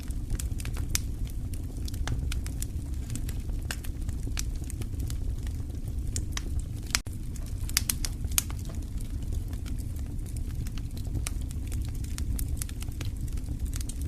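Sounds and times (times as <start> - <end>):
fire crackles and pops: 0.0 - 14.0
fire rumbling: 0.0 - 14.0.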